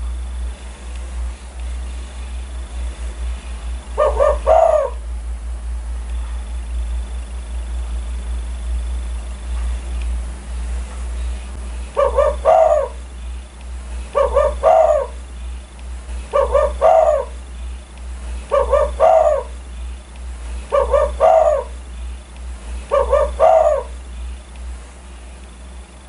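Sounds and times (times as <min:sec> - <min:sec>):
steady low hum: 0:00.0 - 0:26.0
dove cooing: 0:03.0 - 0:05.1, 0:11.2 - 0:24.5.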